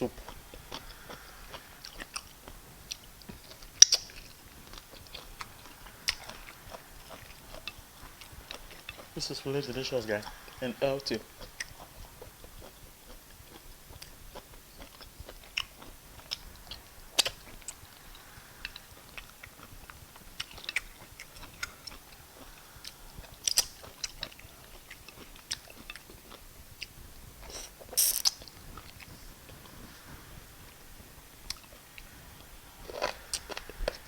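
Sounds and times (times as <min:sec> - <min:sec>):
chewing: 0:00.0 - 0:34.0
sharp clicks while eating: 0:02.9 - 0:09.8, 0:17.2 - 0:29.1
wet mouth smacks: 0:27.5 - 0:29.1.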